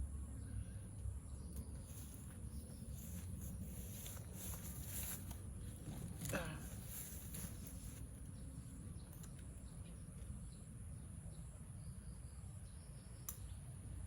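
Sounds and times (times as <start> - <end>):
faint clicks: 13.2 - 13.5.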